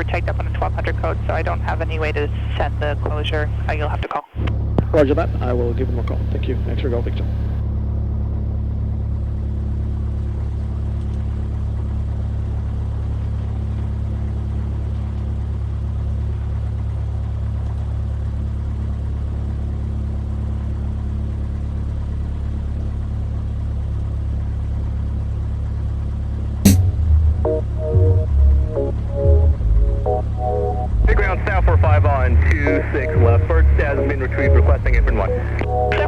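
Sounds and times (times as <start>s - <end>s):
aircraft engine drone: 4.8s - 7.6s, 26.7s - 36.0s.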